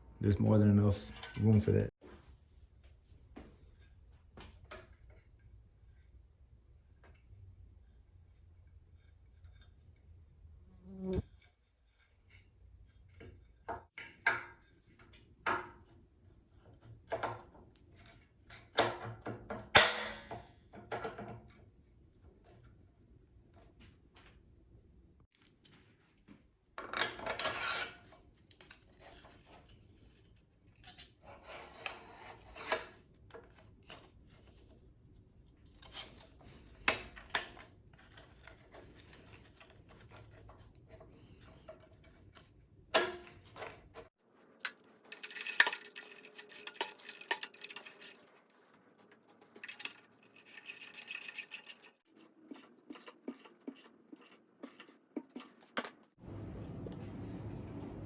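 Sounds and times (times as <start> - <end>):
hands scraping and rubbing parts: 27.0 - 56.2
rattling scrape: 30.8 - 33.1, 44.7 - 55.6.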